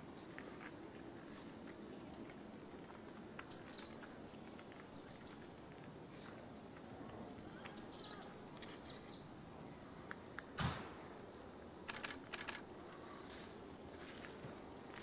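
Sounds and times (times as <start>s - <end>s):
small birds chirping: 2.6s - 5.5s, 7.1s - 10.2s, 12.3s - 14.2s
rustle with low thud: 10.6s - 11.0s
quick clicks: 11.9s - 12.7s.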